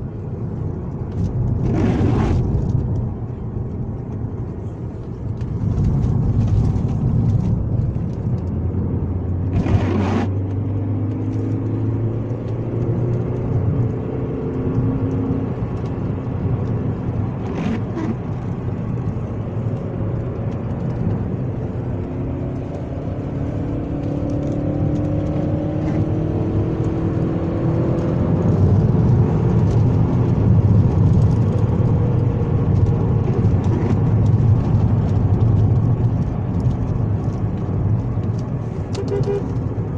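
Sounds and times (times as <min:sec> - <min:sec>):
car engine revving: 0:08.4 - 0:19.4.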